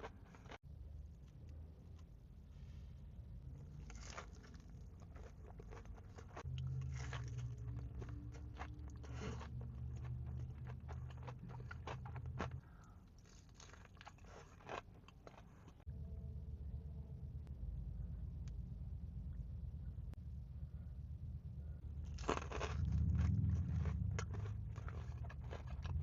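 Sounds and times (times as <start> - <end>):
chewing crunchy food: 0.0 - 0.6, 3.6 - 15.9, 21.9 - 26.0
low steady hum: 0.0 - 26.0.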